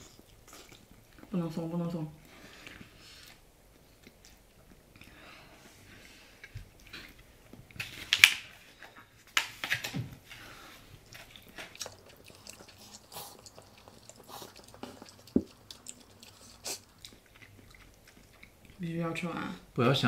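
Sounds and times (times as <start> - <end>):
people chewing and slurping noodles: 0.0 - 1.3, 2.2 - 7.8, 10.2 - 18.8.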